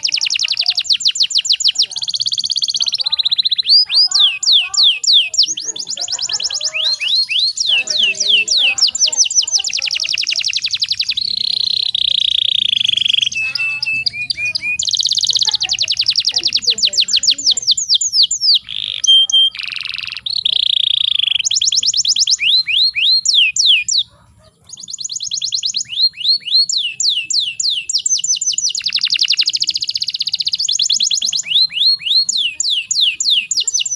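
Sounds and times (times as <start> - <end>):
canary singing trills: 0.0 - 33.9.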